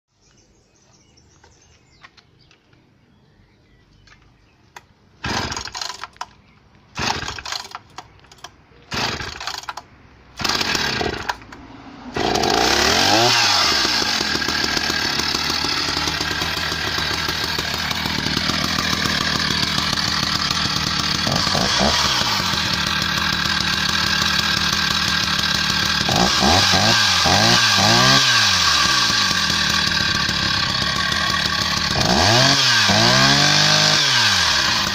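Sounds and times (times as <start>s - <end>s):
chainsaw running and revving: 5.2s - 6.2s, 7.0s - 7.9s, 8.9s - 9.8s, 10.4s - 34.9s
chainsaw starting attempts: 5.2s - 34.9s.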